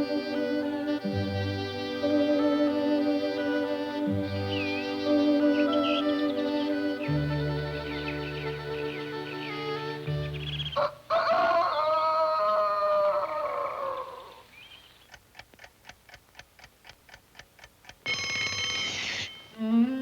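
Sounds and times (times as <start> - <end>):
orchestral passage: 0.0 - 10.7
clock ticking quickly: 15.1 - 19.6
alarm clock bell ringing: 18.0 - 19.7.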